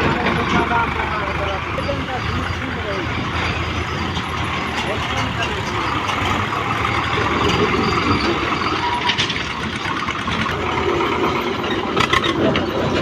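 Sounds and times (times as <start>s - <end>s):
heavy diesel engine running: 0.0s - 13.0s
short clatter: 3.3s - 13.0s.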